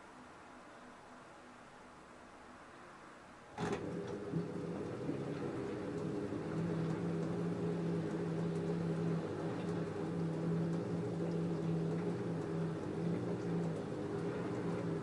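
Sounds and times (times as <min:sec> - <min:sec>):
washing machine motor hum: 0:03.5 - 0:15.0.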